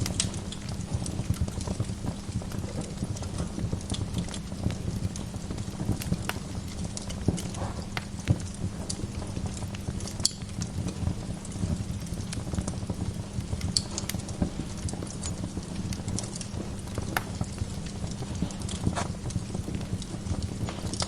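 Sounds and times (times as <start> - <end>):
low rumble of flames: 0.0 - 21.0
sharp pops of fire: 0.0 - 21.0
wood fire crackling: 0.0 - 21.0.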